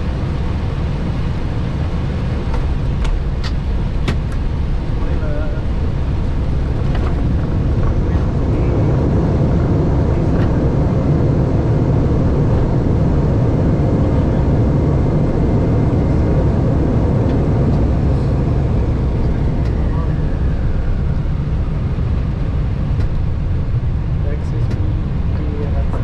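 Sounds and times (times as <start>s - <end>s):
airliner rolling on runway: 0.0s - 26.0s.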